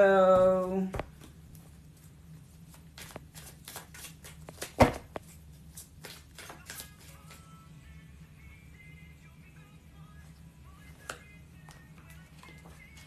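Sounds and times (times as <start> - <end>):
faint music: 0.0 - 13.0
cards being shuffled: 2.6 - 7.5.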